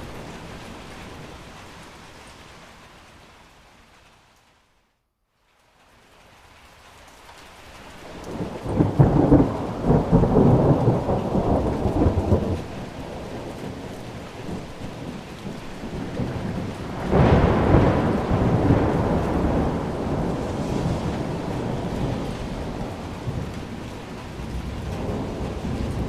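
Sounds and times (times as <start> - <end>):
steady rain: 0.0 - 26.0
thunder rumbling: 8.0 - 26.0.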